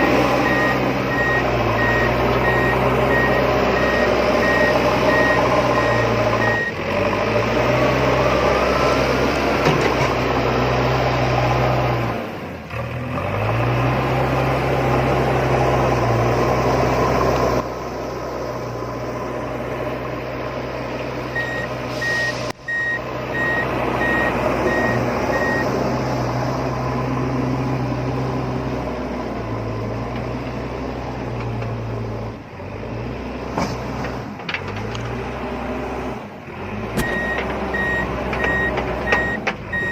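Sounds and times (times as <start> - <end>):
reversing beeper: 0.4 - 6.8, 21.4 - 25.7, 37.1 - 39.9.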